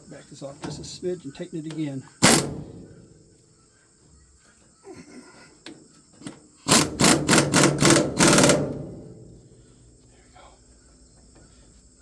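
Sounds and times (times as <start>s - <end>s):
impact wrench hammering: 2.2s - 2.9s, 6.7s - 9.1s.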